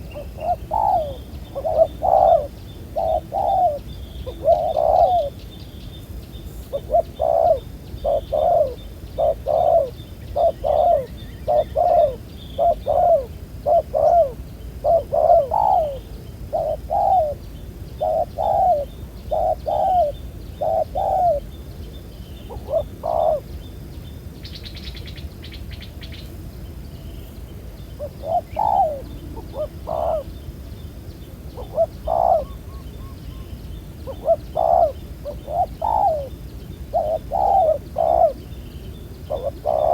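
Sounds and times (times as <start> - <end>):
dove cooing: 0.0 - 5.4, 6.7 - 21.5, 22.5 - 23.5, 28.0 - 30.4, 31.6 - 38.6, 39.2 - 39.9.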